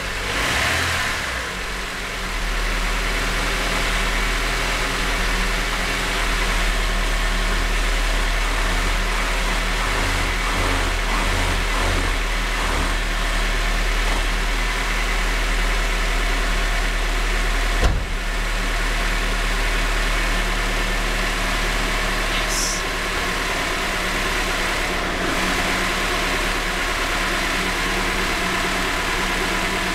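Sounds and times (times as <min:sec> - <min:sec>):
car engine idling: 0:00.0 - 0:29.9
sharp knock: 0:17.8 - 0:18.2.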